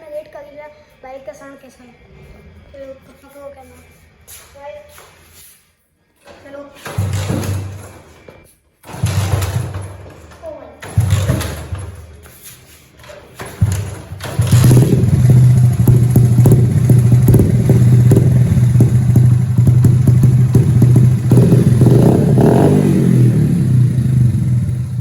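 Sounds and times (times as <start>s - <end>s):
motorcycle engine running loudly: 9.0s - 9.8s, 10.9s - 11.8s, 13.6s - 25.0s.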